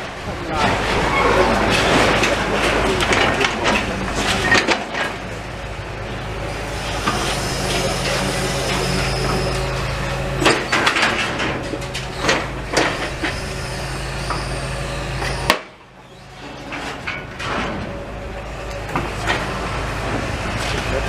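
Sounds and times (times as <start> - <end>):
heavy engine running: 0.0 - 21.0
street noise: 0.0 - 21.0
knocks and clatter: 0.6 - 5.3, 10.4 - 13.4, 16.4 - 18.0.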